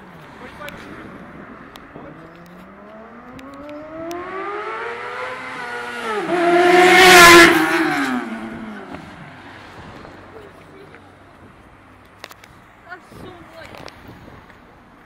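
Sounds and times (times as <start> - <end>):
motorcycle engine passing by: 2.7 - 9.2.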